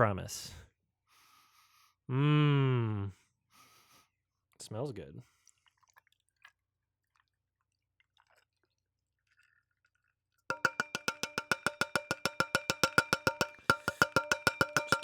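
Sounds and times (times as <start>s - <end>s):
glass clinking rapidly: 10.5s - 15.0s.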